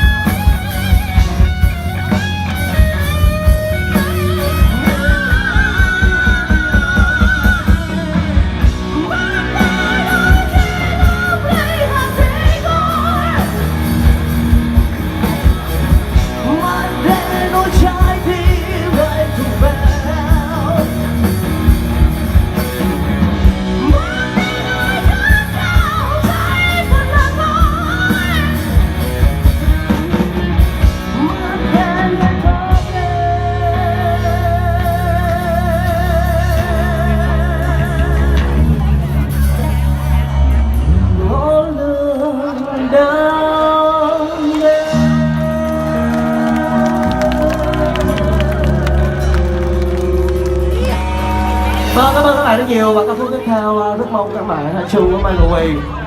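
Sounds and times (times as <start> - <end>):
drums steady beat: 0.0 - 40.8
electric guitar: 0.0 - 56.0.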